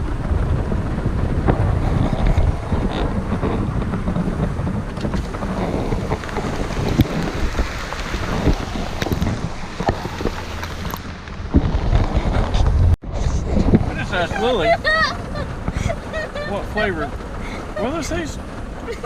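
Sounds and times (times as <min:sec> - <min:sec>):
rain on a truck roof: 0:00.0 - 0:11.8, 0:14.0 - 0:19.0
low rumble: 0:00.0 - 0:19.0.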